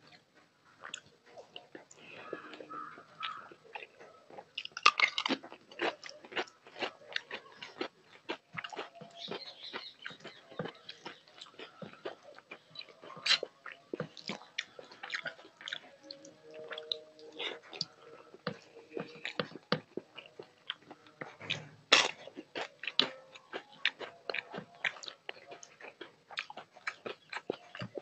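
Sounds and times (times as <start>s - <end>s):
person chewing crunchy food: 0.8s - 28.0s.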